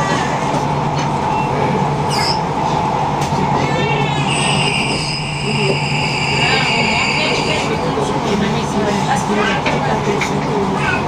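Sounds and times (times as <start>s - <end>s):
wheels rumbling on rail: 0.0s - 11.0s
high steady squeal: 4.1s - 7.8s.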